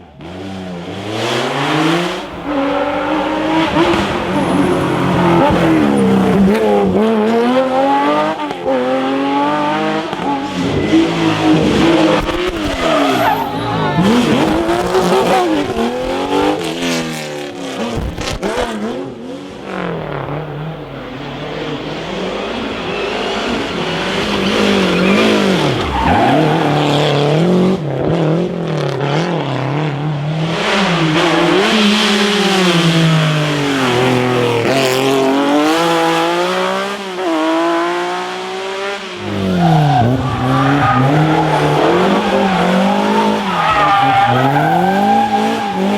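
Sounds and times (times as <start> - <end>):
rally car engines revving: 0.0 - 45.9.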